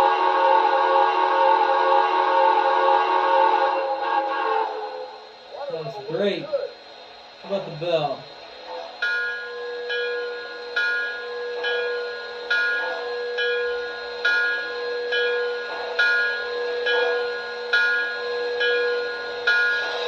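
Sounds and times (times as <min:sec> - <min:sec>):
steady hum: 0:03.2 - 0:20.0
locomotive bell ringing: 0:09.0 - 0:20.0.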